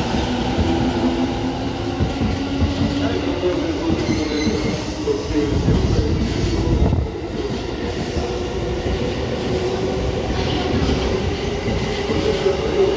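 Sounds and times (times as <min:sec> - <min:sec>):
train hum: 0:00.0 - 0:12.9
train wheels rumbling: 0:00.0 - 0:12.9.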